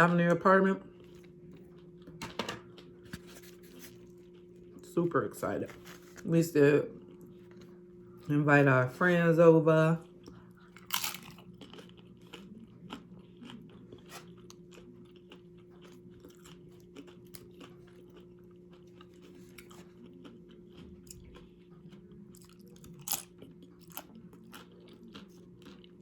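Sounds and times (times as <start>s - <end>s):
person chewing crisp food: 10.1s - 26.0s.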